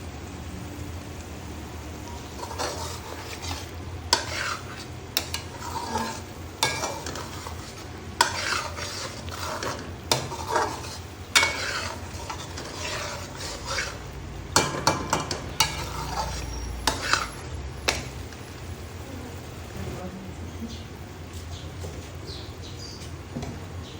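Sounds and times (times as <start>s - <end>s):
food sizzling in a pan: 0.0s - 20.0s
metal spoon scraping pan: 2.0s - 18.1s
spoon clinking against pan: 5.2s - 7.6s, 14.6s - 18.0s.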